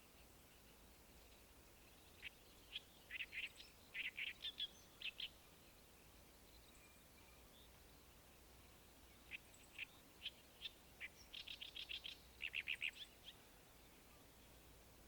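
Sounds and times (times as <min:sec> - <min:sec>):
faint outdoor background: 0:00.0 - 0:15.0
small bird chirping: 0:01.9 - 0:05.4, 0:09.2 - 0:14.6.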